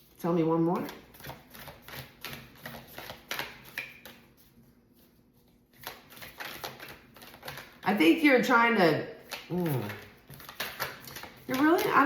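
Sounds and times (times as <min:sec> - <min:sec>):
cards being shuffled: 0:01.1 - 0:07.8, 0:09.2 - 0:12.0.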